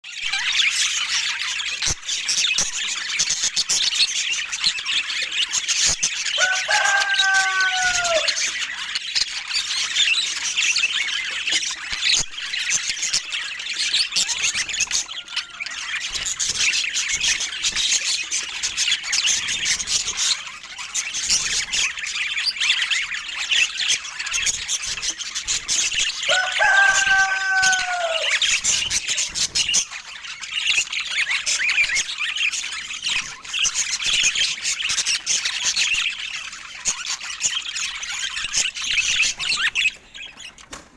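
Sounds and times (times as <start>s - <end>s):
budgerigars chattering: 0.2s - 40.8s
low descending bird call: 6.4s - 8.5s, 26.3s - 28.5s.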